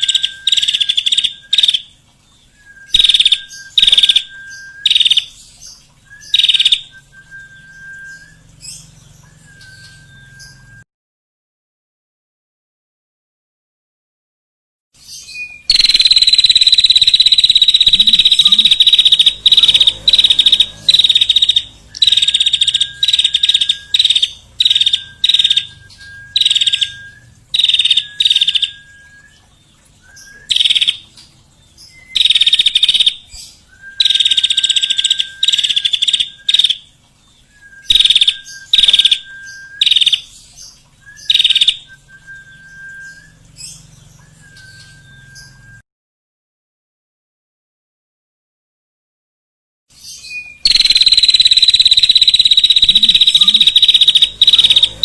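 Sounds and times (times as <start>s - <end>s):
songbird rattling trills: 15.7s - 28.8s, 31.8s - 36.8s, 50.7s - 55.0s.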